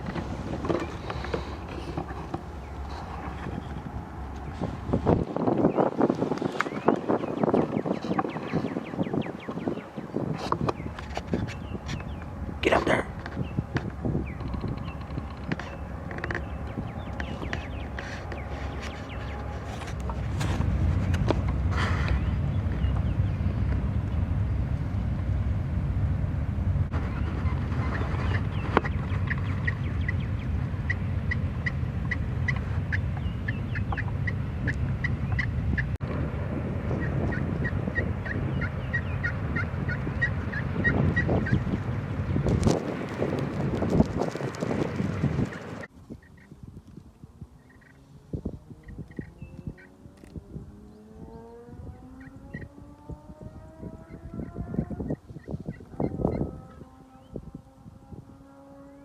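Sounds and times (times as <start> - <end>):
steady low rumble: 0.0 - 50.6
birds chirping: 0.0 - 59.0
turkey yelping: 27.0 - 35.9, 36.9 - 41.8.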